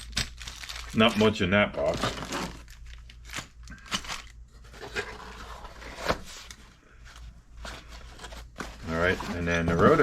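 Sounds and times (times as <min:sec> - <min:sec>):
packaging crinkling: 0:00.0 - 0:06.7.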